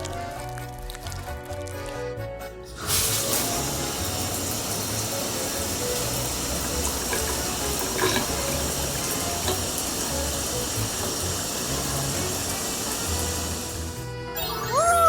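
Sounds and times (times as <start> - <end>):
light background music: 0.0 - 15.0
tap running into a sink: 2.8 - 13.9.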